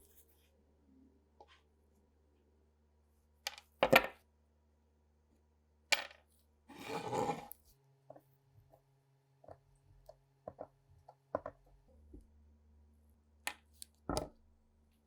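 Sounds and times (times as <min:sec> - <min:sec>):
rough rubbing: 0:06.7 - 0:07.5.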